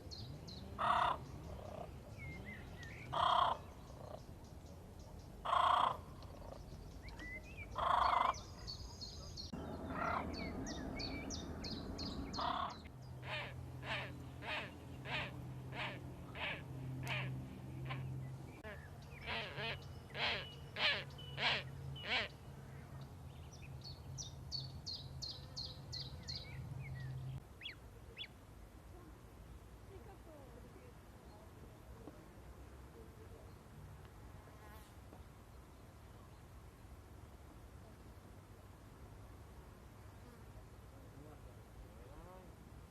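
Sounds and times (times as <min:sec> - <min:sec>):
birds chirping: 0:00.0 - 0:28.4
low steady hum: 0:08.5 - 0:34.5.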